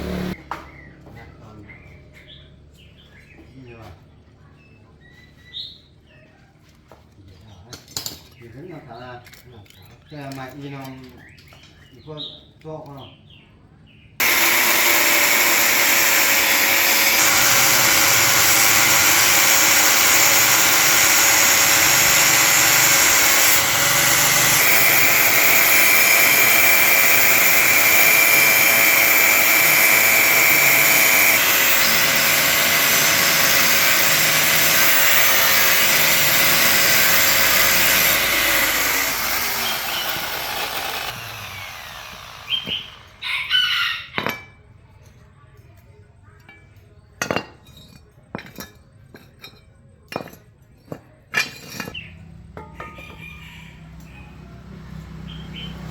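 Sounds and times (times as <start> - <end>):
electric power tool whining: 0.0 - 0.4, 14.2 - 43.2.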